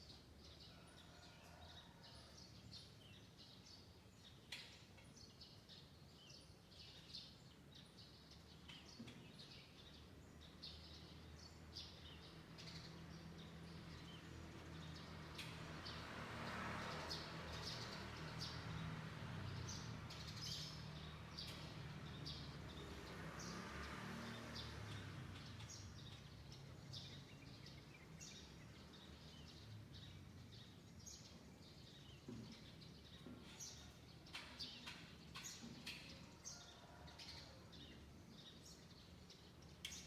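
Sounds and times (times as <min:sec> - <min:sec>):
small birds chirping: 0:19.5 - 0:40.0.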